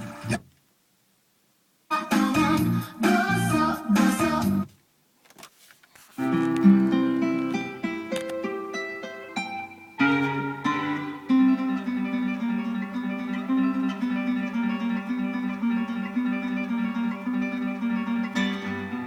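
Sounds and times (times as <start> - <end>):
acoustic guitar music on radio: 0.0 - 0.6, 1.9 - 19.0.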